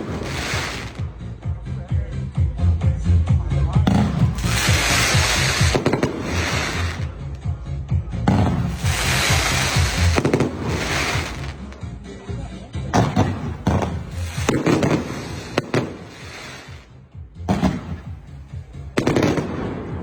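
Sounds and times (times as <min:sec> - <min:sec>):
fireworks bangs and crackle: 0:00.0 - 0:01.4, 0:03.8 - 0:07.4, 0:08.2 - 0:11.8, 0:12.9 - 0:20.0
background music: 0:00.0 - 0:20.0.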